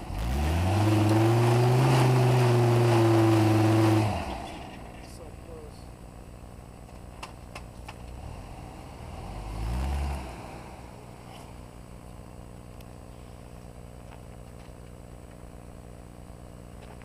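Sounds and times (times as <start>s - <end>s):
truck engine revving: 0.0s - 5.0s, 8.0s - 12.0s.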